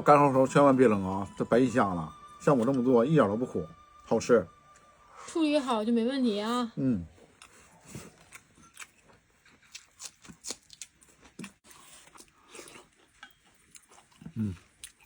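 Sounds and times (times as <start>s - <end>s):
soft chewing: 7.0s - 15.0s.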